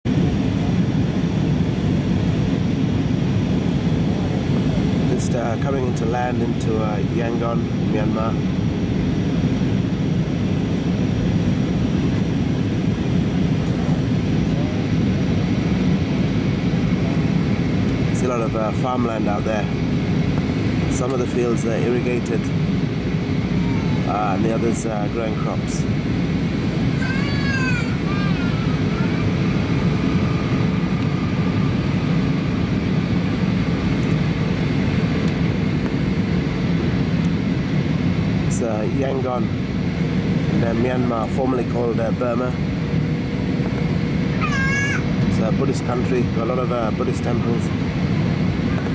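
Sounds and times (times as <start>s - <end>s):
aircraft engine and airflow noise: 0.0s - 48.9s
airplane cabin rumble: 0.1s - 48.9s.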